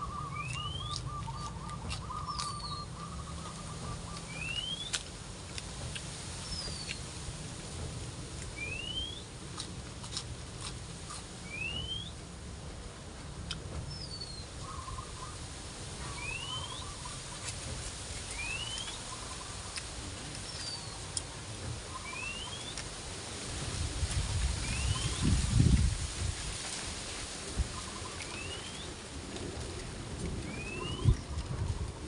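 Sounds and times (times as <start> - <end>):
bird rising whistle call: 4.3 - 4.9, 8.6 - 9.2, 11.5 - 12.1, 16.2 - 17.0, 18.4 - 19.0, 22.0 - 22.7, 30.5 - 31.2
wind rumble on microphone: 23.0 - 32.0.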